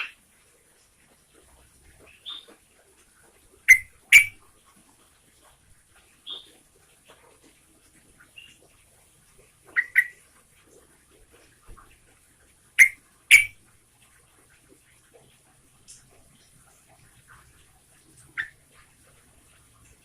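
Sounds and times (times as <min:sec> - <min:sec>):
bird call notes: 0:03.7 - 0:04.4, 0:09.7 - 0:10.2, 0:12.8 - 0:13.6.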